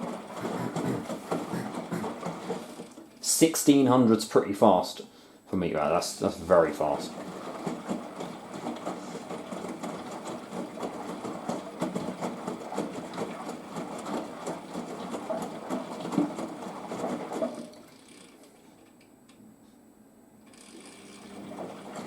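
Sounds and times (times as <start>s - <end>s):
washing machine drum tumbling: 0.0s - 2.8s, 6.4s - 17.8s
water sloshing: 0.0s - 2.8s.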